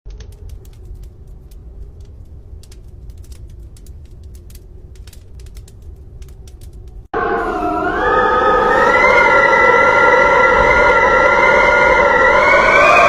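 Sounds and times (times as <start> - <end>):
rain falling: 0.1 - 7.1
steady low rumble: 0.1 - 9.0.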